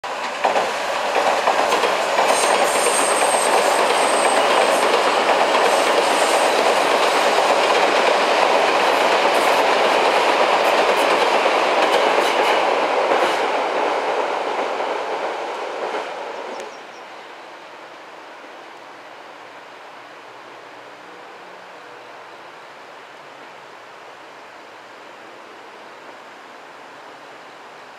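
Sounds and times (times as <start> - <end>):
train wheels rumbling on rail: 0.0 - 16.9
rail-joint clicks: 0.1 - 13.6.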